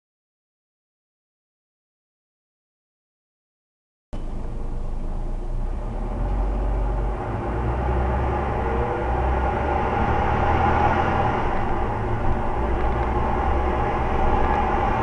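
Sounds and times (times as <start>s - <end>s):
bus engine rumble: 4.2s - 15.0s
drivetrain whine: 4.2s - 15.0s.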